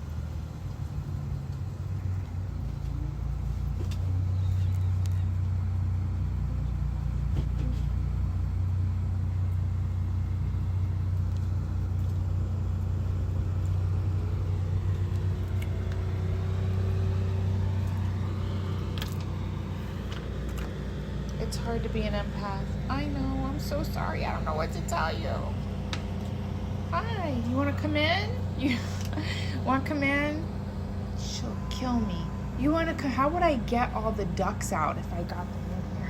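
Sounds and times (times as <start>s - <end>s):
vehicle engine rumbling: 0.0s - 36.0s.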